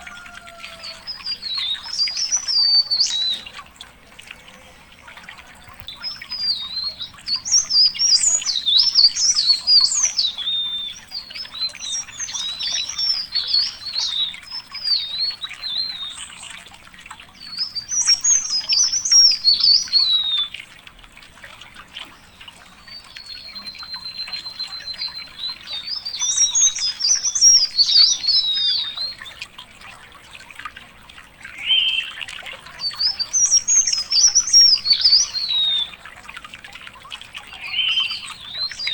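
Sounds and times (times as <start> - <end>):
songbird warbling: 0.0 - 16.7, 22.3 - 29.4, 31.4 - 36.2, 37.3 - 38.9.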